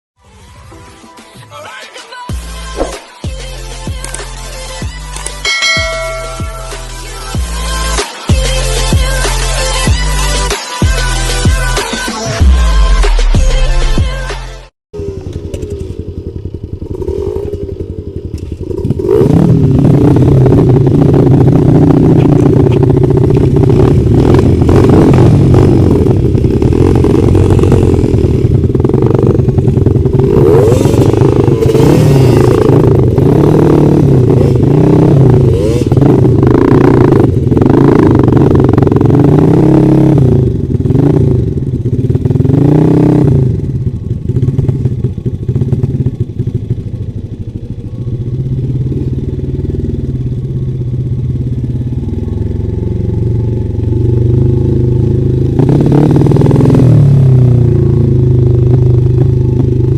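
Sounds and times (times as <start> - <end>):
motorcycle engine revving: 15.0 - 59.9.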